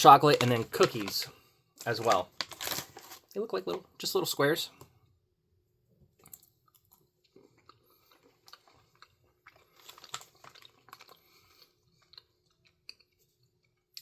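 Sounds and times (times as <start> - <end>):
biting and chewing cookie: 6.2 - 14.0.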